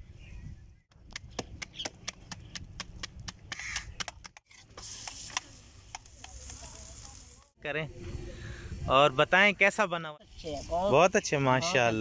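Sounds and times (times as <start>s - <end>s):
flatbread sizzling on hot griddle: 4.6s - 7.6s.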